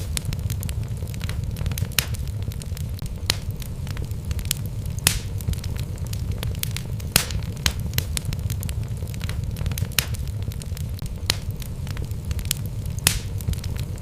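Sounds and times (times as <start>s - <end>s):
burning logs crackling: 0.0s - 14.0s
low rumble of flames: 0.0s - 14.0s.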